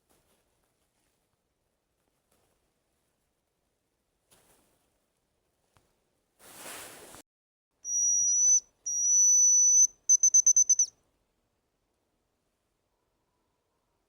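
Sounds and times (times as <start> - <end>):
brief rustle: 6.4 - 7.2
high-pitched whistle: 7.9 - 10.9.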